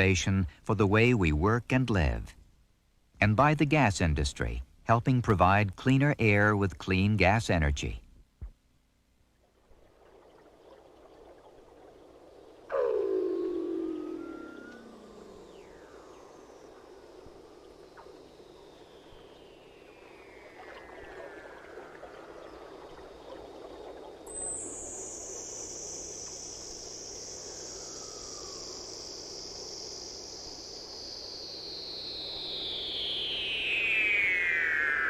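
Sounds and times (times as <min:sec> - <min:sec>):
gliding synthesizer tones: 0:12.6 - 0:25.2, 0:32.5 - 0:35.0
high falling tone: 0:12.7 - 0:22.6, 0:31.8 - 0:35.0.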